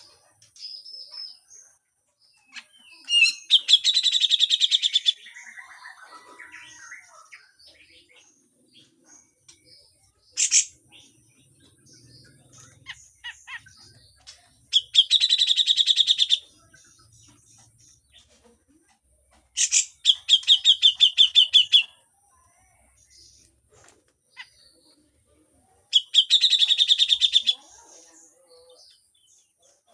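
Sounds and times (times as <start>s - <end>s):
bird rasping chatter: 10.4s - 10.8s, 19.6s - 21.9s.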